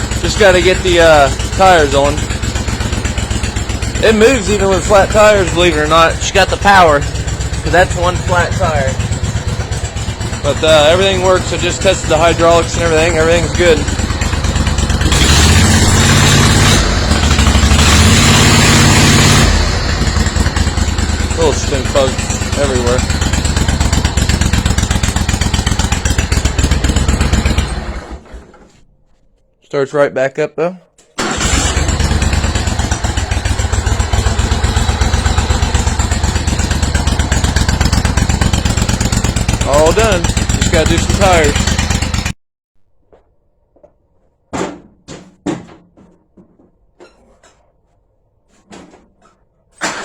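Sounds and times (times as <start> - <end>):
mower engine running: 0.0 - 28.7, 31.2 - 42.4.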